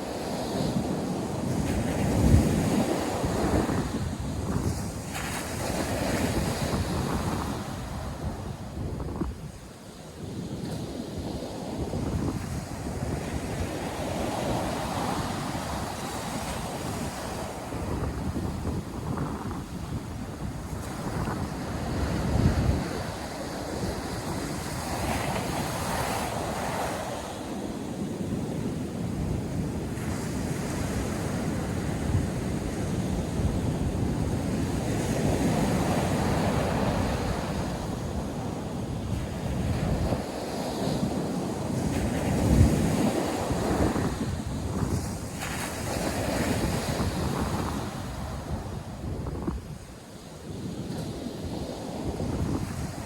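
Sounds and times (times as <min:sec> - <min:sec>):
ocean surf breaking on beach: 0:00.0 - 0:53.0
wind buffeting microphone: 0:00.0 - 0:53.0.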